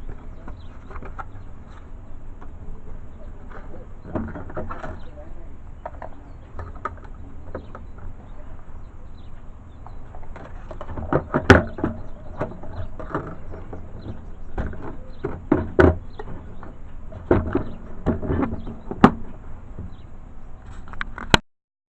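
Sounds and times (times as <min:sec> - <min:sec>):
knocks and clatter of parts: 0:03.4 - 0:05.2, 0:09.3 - 0:20.0.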